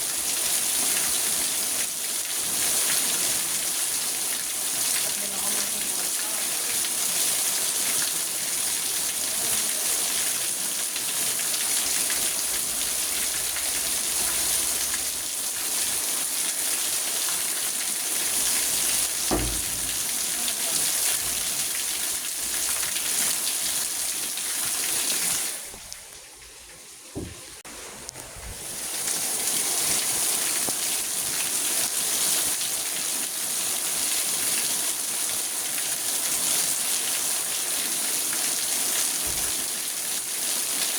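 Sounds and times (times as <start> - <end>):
rain on a car: 0.0 - 26.3, 28.7 - 40.9
low thump: 19.2 - 20.5
small knocks: 19.2 - 20.6, 27.2 - 27.6.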